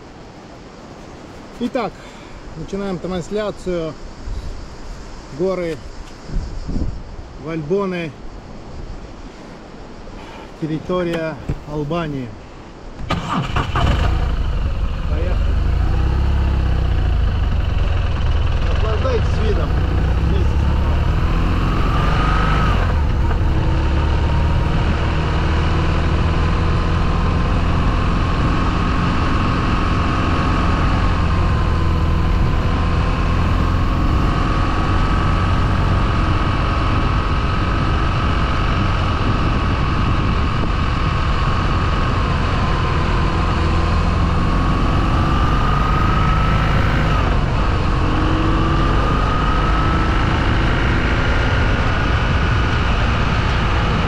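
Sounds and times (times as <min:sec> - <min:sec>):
road and wind noise: 0:00.0 - 0:54.0
motorcycle engine running: 0:13.8 - 0:54.0.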